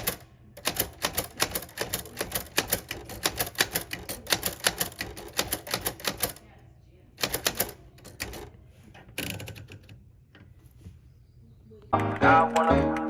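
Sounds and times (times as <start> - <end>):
rapid irregular clicking: 0.0 - 6.4, 7.2 - 8.6.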